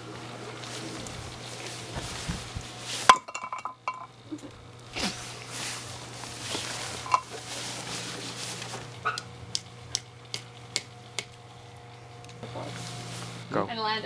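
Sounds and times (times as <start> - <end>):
scraping and rustling: 0.6 - 4.0, 5.0 - 9.0.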